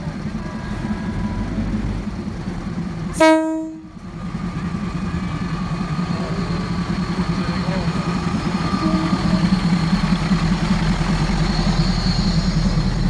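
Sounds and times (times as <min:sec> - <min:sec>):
diesel railcar engine passing: 0:00.0 - 0:13.0
train horn blast: 0:03.2 - 0:03.9, 0:08.6 - 0:09.6.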